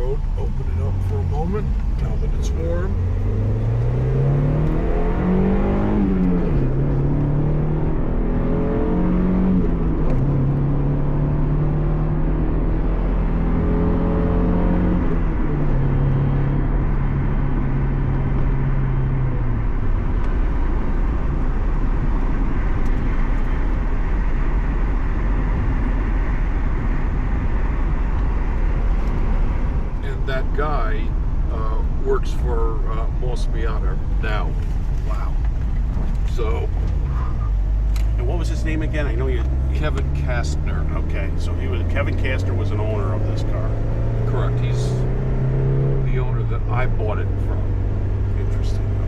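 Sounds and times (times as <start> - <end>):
car engine accelerating: 0.0 - 49.0
road and tyre noise: 0.0 - 49.0.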